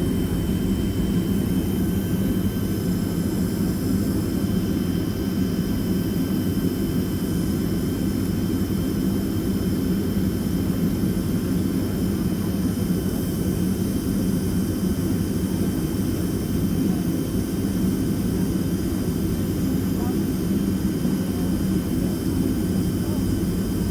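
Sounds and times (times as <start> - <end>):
jet engine cabin noise: 0.0 - 23.9.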